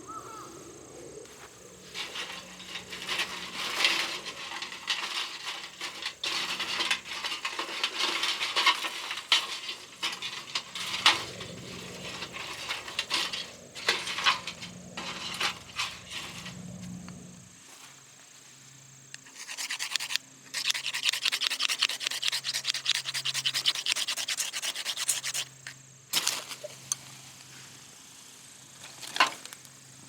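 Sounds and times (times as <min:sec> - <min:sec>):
metal camp gear clinking: 0:01.8 - 0:17.2.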